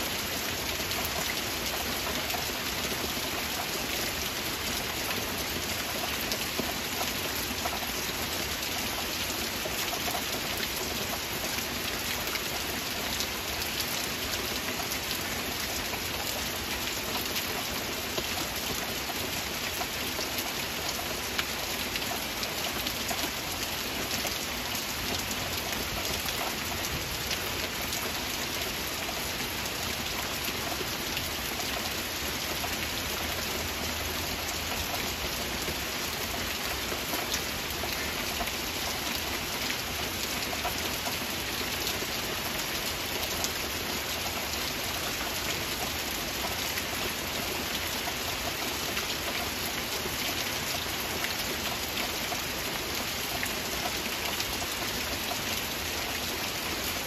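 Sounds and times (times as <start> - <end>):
heavy rain in a forest: 0.0 - 57.0.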